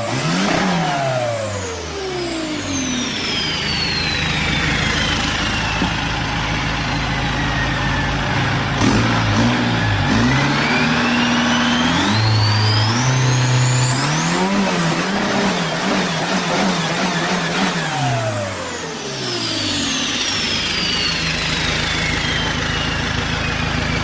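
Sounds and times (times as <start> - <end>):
diesel engine revving: 0.0 - 24.0
high whistle: 0.4 - 8.8, 9.7 - 24.0.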